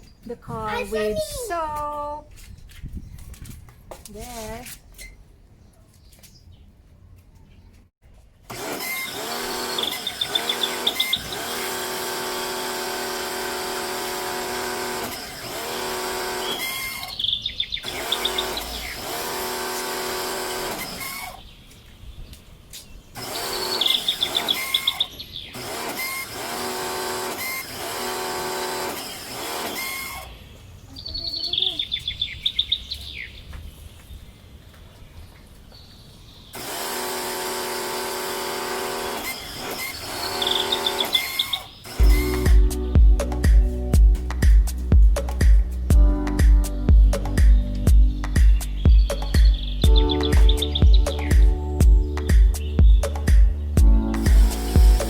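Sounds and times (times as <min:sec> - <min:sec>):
pressure washer motor and pump: 0:08.4 - 0:21.4, 0:23.2 - 0:30.4, 0:36.6 - 0:44.6, 0:53.8 - 0:55.0
high chirping: 0:09.6 - 0:11.5, 0:16.4 - 0:19.2, 0:40.0 - 0:55.0.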